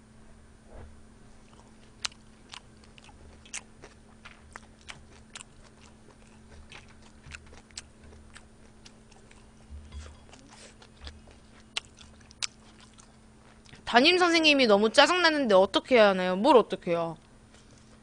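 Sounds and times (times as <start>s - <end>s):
close chewing with wet clicks: 1.4s - 13.9s.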